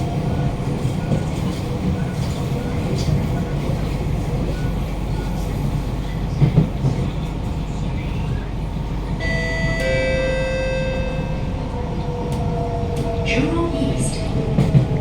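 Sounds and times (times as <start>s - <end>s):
train car running rumble: 0.0s - 15.0s
two-tone electronic chime: 9.2s - 11.6s.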